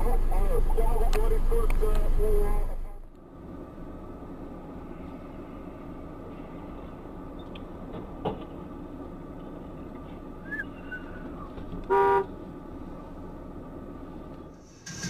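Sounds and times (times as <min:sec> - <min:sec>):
traffic noise: 0:00.0 - 0:15.0
car horn honk: 0:11.8 - 0:12.3.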